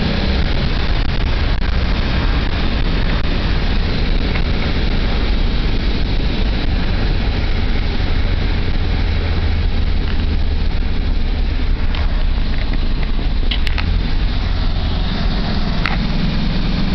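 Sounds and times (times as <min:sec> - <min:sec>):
car engine drone with wind: 0:00.0 - 0:16.9.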